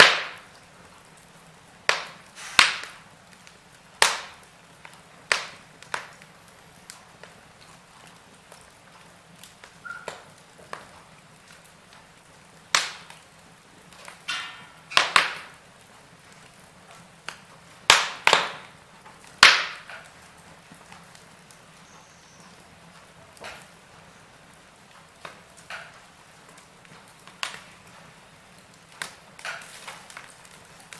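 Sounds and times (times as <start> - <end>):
wood fire crackling and popping: 0.0 - 30.9
short hissing: 2.4 - 2.7.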